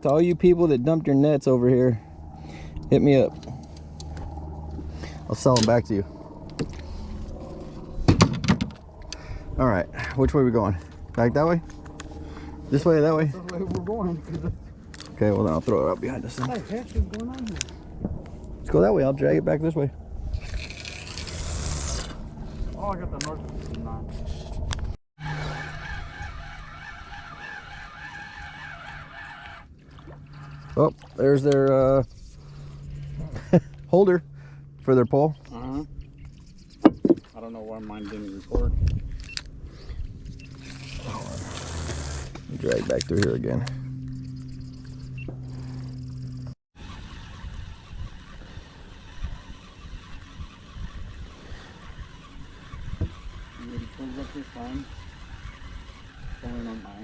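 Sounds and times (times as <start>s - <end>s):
low rumbling noise: 0.0s - 31.2s
wavering mechanical whine: 0.0s - 57.0s.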